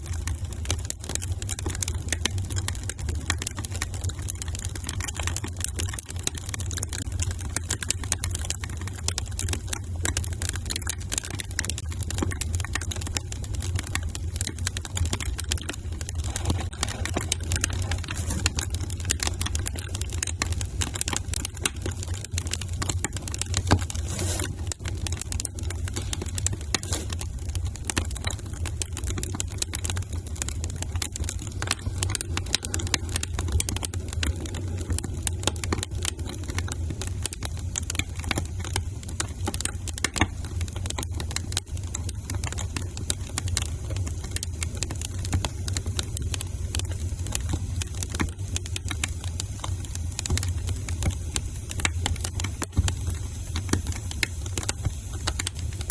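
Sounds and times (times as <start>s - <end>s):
low rumble of burning fire: 0.0s - 55.9s
wood fire crackling and popping: 0.0s - 55.9s.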